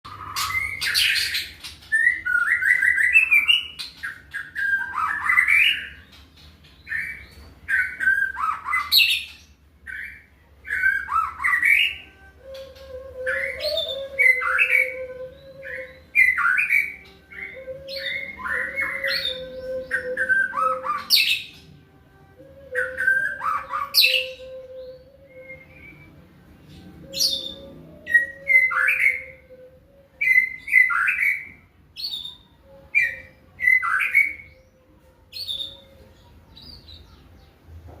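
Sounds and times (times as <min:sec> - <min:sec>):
bird singing chirps and whistles: 0:00.1 - 0:21.8, 0:22.4 - 0:37.5.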